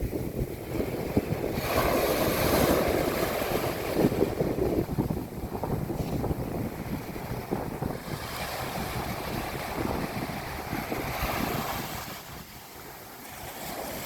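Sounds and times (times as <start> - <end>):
surf rumble: 0.0 - 14.0
wave washing on beach: 0.0 - 14.0
wind buffeting microphone: 0.0 - 14.0.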